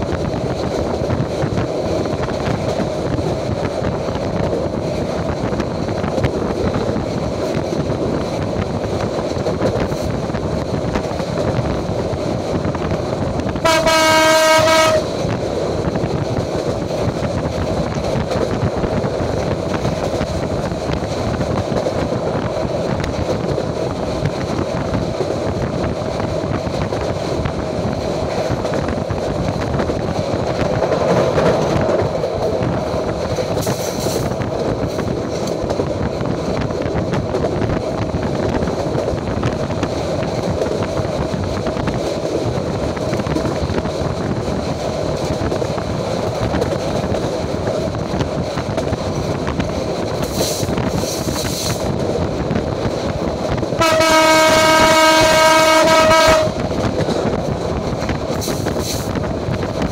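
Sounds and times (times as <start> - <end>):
train wheels rumbling on rails: 0.0 - 59.9
train horn blast: 13.6 - 15.1, 53.8 - 56.6.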